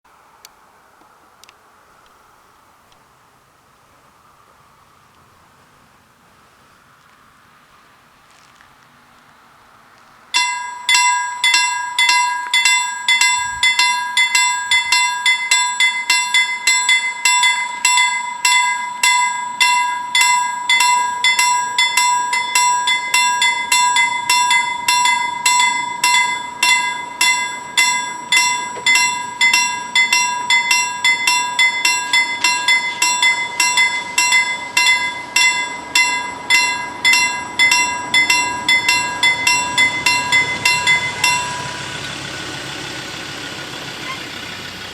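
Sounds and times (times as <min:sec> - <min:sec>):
level crossing warning bells: 0:10.3 - 0:44.9.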